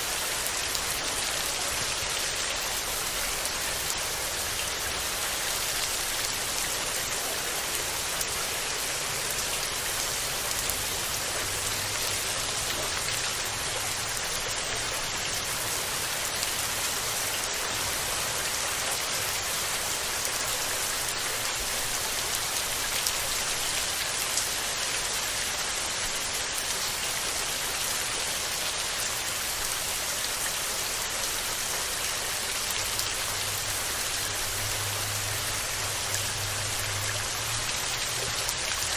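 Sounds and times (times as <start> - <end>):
steady rain pattering: 0.0 - 38.9.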